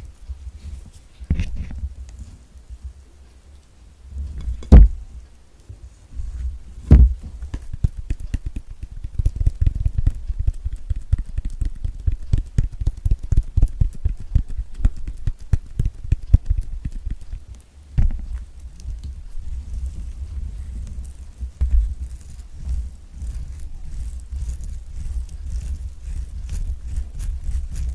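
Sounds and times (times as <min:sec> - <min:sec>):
orange thumping on table: 0:04.6 - 0:05.0
fingernails tapping orange peel: 0:06.9 - 0:19.2.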